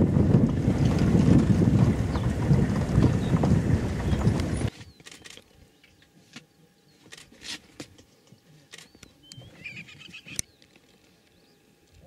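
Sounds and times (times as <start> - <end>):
faint bird chirps and whistles: 8.2 - 11.7.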